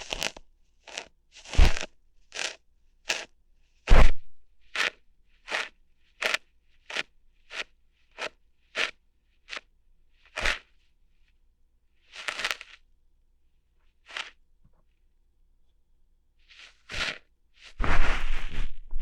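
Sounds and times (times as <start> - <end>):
ear hair plucking pops: 0.0 - 2.5, 3.9 - 4.4.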